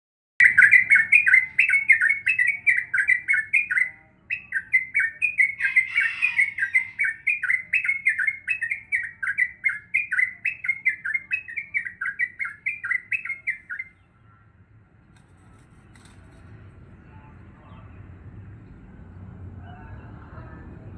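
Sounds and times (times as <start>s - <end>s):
bird chattering song: 0.4s - 14.5s.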